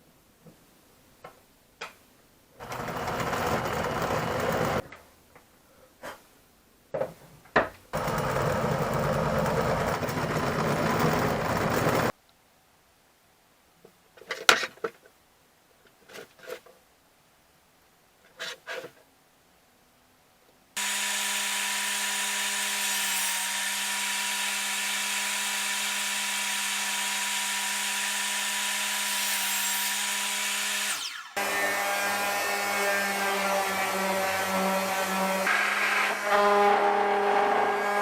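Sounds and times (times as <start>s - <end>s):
power tool running on wood: 2.6s - 4.8s, 8.0s - 12.1s, 20.8s - 33.7s.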